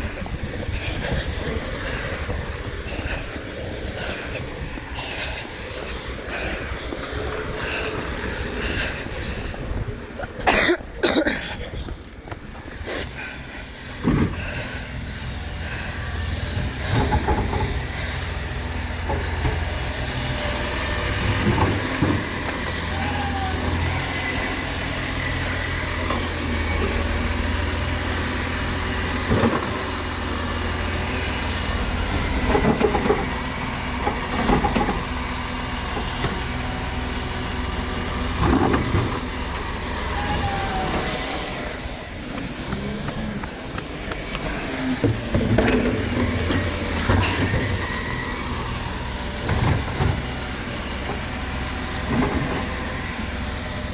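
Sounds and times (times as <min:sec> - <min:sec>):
diesel truck engine running: 0:00.0 - 0:53.9
lifting arm and bins clanking: 0:16.6 - 0:53.5.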